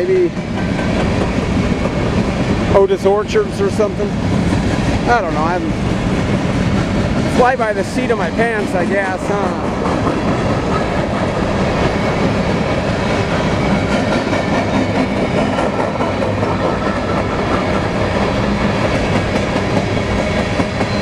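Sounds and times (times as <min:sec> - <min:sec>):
freight train rumbling past: 0:00.0 - 0:21.0
wheels clattering over rails: 0:00.0 - 0:21.0.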